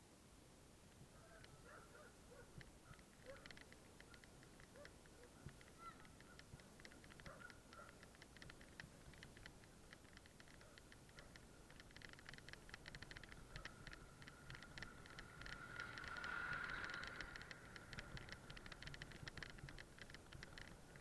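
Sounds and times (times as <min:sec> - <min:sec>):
bicycle freewheel ticking: 0:05.5 - 0:21.0.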